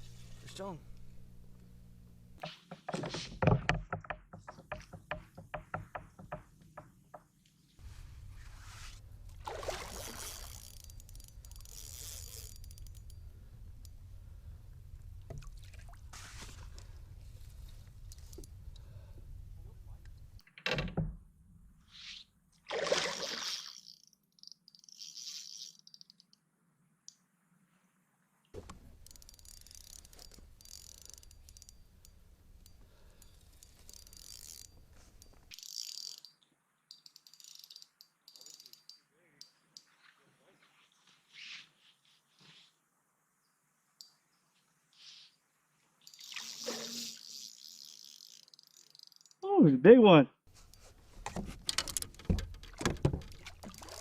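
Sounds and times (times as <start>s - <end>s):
water splashing against kayak: 8.5s - 10.6s, 22.7s - 23.8s, 50.8s - 54.0s
fishing reel clicking: 9.9s - 14.0s, 18.0s - 18.8s, 23.7s - 26.4s, 28.8s - 39.9s, 46.0s - 49.4s.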